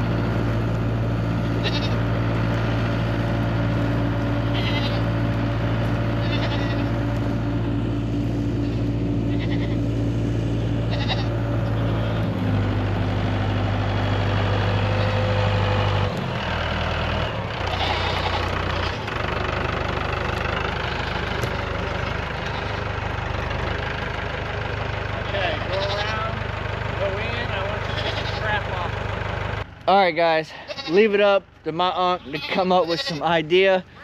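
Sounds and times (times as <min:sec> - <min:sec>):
goats bleating: 0:00.0 - 0:13.3, 0:14.6 - 0:16.0, 0:17.5 - 0:19.2, 0:20.0 - 0:23.2, 0:25.2 - 0:26.4, 0:27.4 - 0:28.9, 0:30.2 - 0:34.0
tractor engine running: 0:00.0 - 0:34.0.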